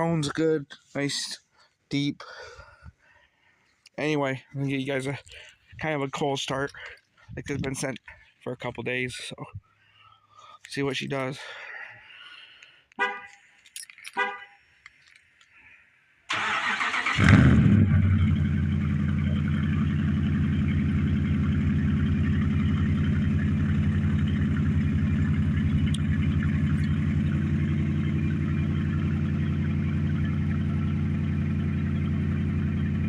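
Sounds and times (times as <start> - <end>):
v-eight engine deep idle: 16.4 - 33.0.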